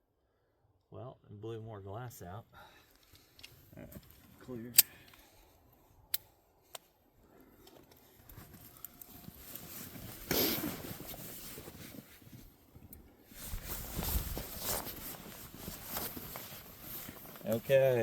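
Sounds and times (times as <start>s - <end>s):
footsteps outdoors: 2.9s - 18.0s
clothing rustle: 7.9s - 18.0s.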